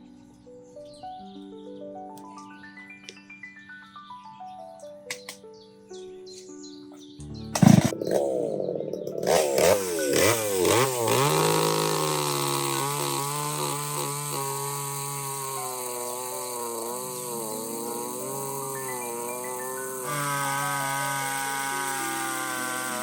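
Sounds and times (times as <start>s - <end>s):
small engine revving: 7.6s - 23.0s.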